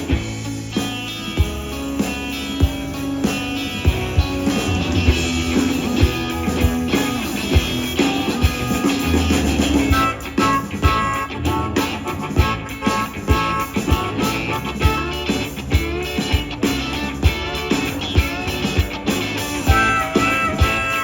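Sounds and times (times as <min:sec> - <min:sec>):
bass and drum kit: 0:00.0 - 0:21.0
electric guitar: 0:00.0 - 0:21.0.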